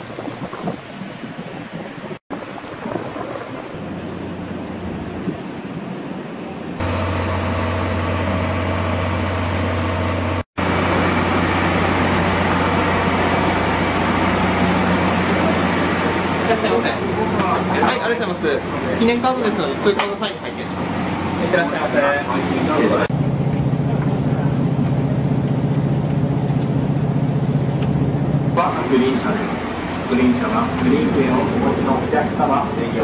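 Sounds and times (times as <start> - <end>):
train machinery humming: 0.0 - 33.0.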